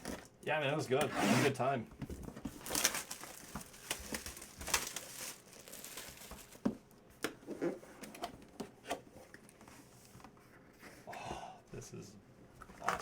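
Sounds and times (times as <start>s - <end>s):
plastic wrapping crinkling: 2.3s - 6.9s
packaging tearing: 2.6s - 6.6s.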